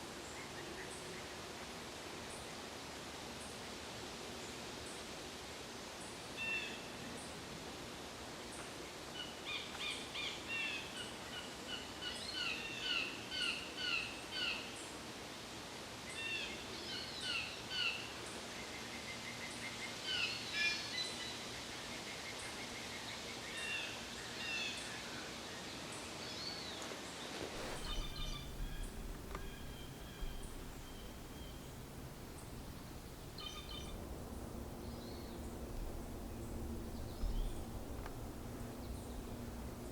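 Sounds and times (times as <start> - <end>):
outdoor background noise: 0.0 - 39.9
small birds chirping: 27.6 - 39.9.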